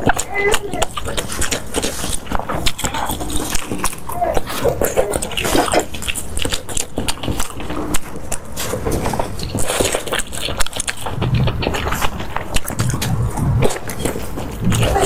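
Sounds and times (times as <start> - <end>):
wet chewing: 0.0 - 15.0.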